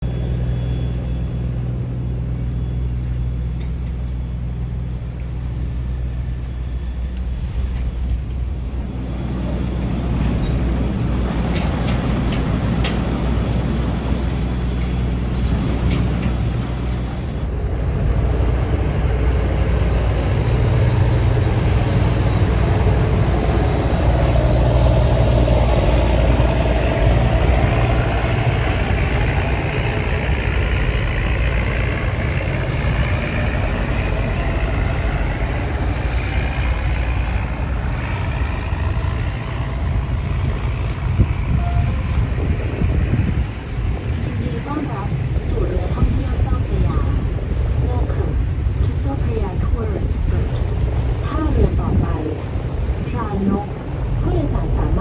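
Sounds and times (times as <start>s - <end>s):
boat engine drone: 0.0s - 55.0s
wind and water rushing: 4.2s - 55.0s
whine rising in pitch: 16.4s - 43.8s.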